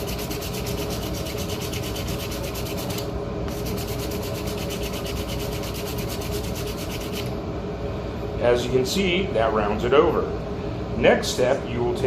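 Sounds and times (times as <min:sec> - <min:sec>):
sandpaper rasping on wood: 0:00.0 - 0:03.0, 0:03.6 - 0:07.3.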